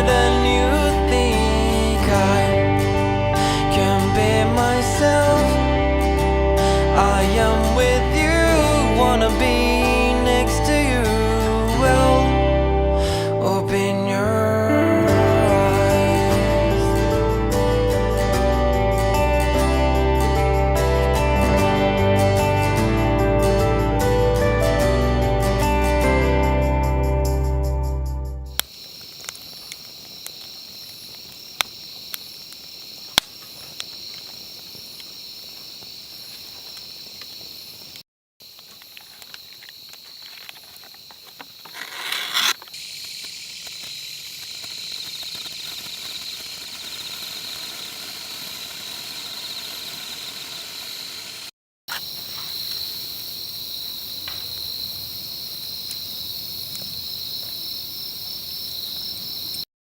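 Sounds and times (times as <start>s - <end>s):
insects chirring: 28.5s - 59.7s
sharp clicks: 42.4s - 47.0s.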